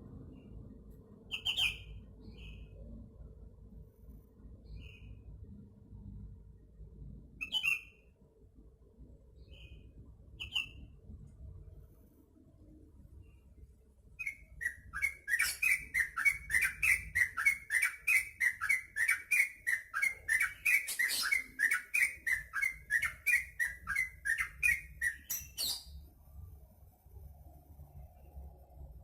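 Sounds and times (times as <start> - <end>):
bird calling repeated notes: 14.2 - 25.9.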